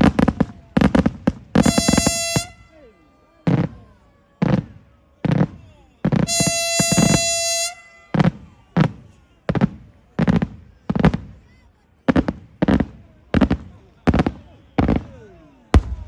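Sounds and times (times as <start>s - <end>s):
fireworks bursting: 0.0s - 2.8s, 3.4s - 16.0s
high-pitched horn-like tone: 1.6s - 2.8s, 6.2s - 8.3s.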